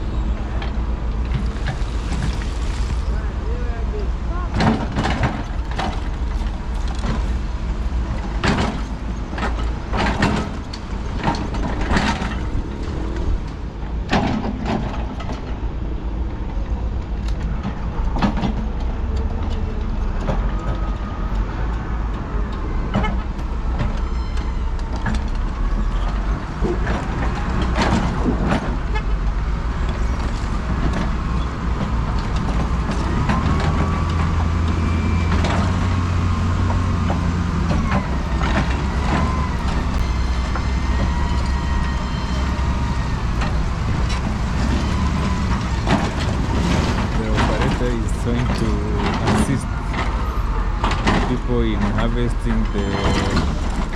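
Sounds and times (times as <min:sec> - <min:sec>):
heavy machinery engine rumble: 0:00.0 - 0:53.9
wavering squeals: 0:23.7 - 0:24.9, 0:37.8 - 0:45.9.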